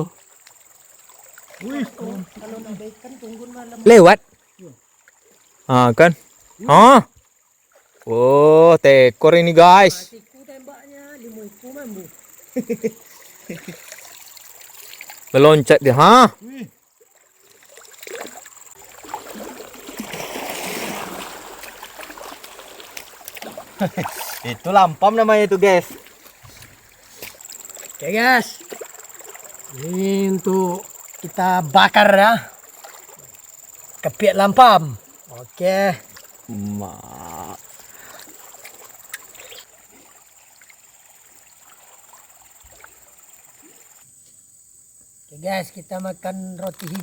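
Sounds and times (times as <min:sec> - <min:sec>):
water splashing and gurgling: 0:00.0 - 0:08.5, 0:10.2 - 0:44.0
high insect drone: 0:00.0 - 0:47.0
click: 0:46.6 - 0:47.0.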